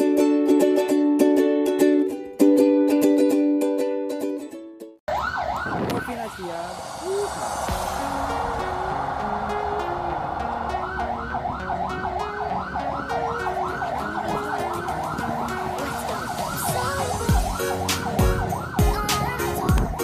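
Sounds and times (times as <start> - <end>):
fast warbling siren: 5.1 - 20.0
heavy bass beats: 6.2 - 20.0
background music: 6.3 - 20.0.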